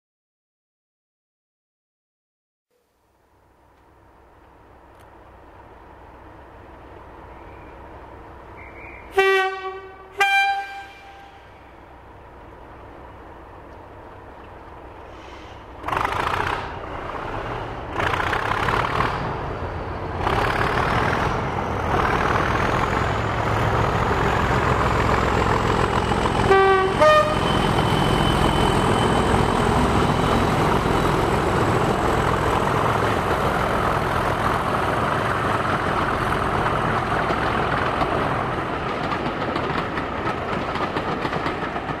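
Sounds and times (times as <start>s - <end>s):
diesel locomotive engine pulling away: 3.2s - 42.0s
two-note locomotive horn: 8.6s - 11.7s, 26.4s - 28.1s
rising engine whine: 15.8s - 37.6s.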